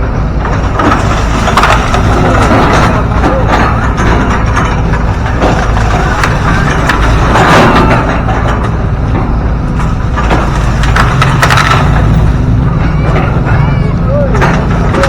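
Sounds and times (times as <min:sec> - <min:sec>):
excavator diesel engine under load: 0:00.0 - 0:15.0
bamboo and wood cracking: 0:09.8 - 0:12.6.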